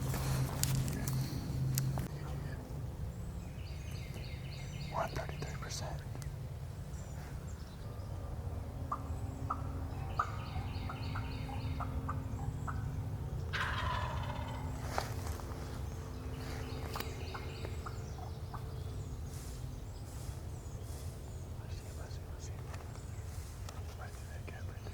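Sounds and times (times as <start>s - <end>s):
small birds chirping: 0.0s - 24.9s
turkey gobbling: 8.9s - 12.9s, 13.5s - 15.1s.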